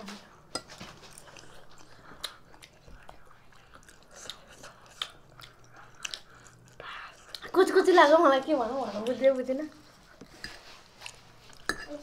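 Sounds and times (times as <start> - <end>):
chewing and biting: 0.6 - 7.5.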